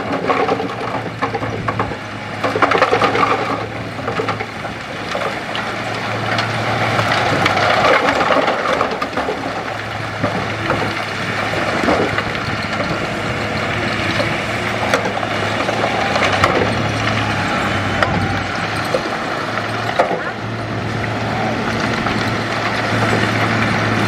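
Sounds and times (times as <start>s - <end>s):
bulldozer diesel engine running: 0.0s - 24.0s
rock and earth crunching: 0.0s - 24.0s.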